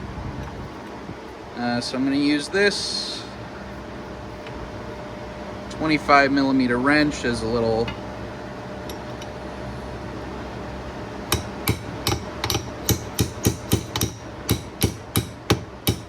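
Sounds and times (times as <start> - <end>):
hammer tapping on metal: 11.3 - 16.0.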